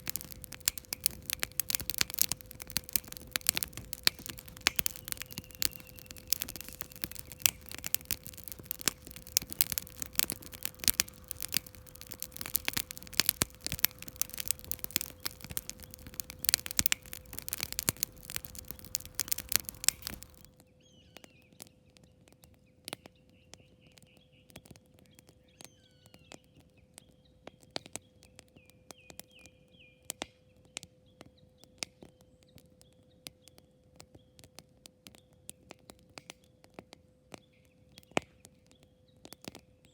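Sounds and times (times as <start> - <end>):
birds chirping: 0.0 - 20.4
campfire crackling and popping: 0.0 - 20.5.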